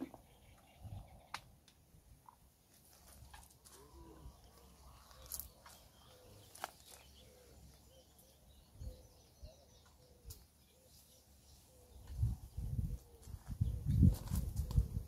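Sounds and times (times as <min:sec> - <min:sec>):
faint bird calls: 0:03.6 - 0:13.9.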